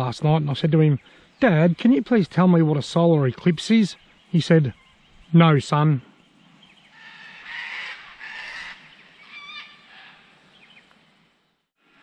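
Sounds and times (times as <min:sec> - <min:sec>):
harsh honking bird calls: 0:06.9 - 0:10.3.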